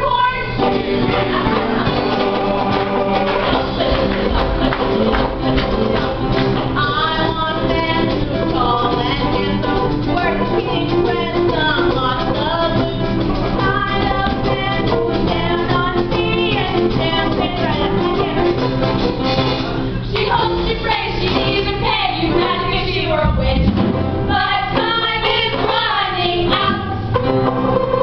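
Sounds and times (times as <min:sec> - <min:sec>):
voices singing: 0:00.0 - 0:12.9, 0:24.3 - 0:27.0
instrumental accompaniment with guitar: 0:00.2 - 0:28.0.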